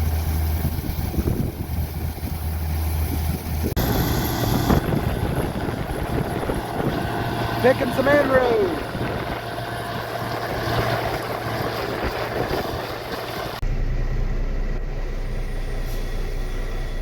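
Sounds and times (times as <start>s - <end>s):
combine harvester running: 0.0s - 17.0s
wind on the microphone: 0.6s - 2.4s, 3.0s - 7.6s, 8.7s - 13.6s.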